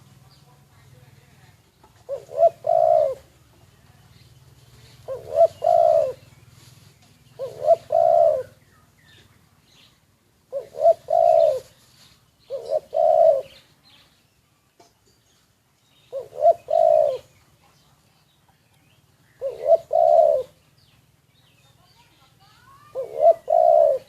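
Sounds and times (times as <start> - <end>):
dove cooing: 1.9 - 3.8, 4.7 - 6.3, 7.2 - 8.6, 10.4 - 11.8, 12.4 - 13.7, 16.1 - 17.4, 19.3 - 20.8, 22.7 - 24.0.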